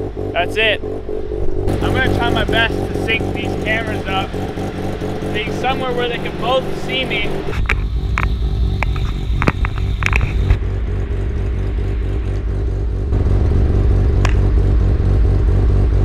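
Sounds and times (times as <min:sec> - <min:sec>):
car engine idling: 0:00.0 - 0:16.0
sharp clicks: 0:07.4 - 0:10.6.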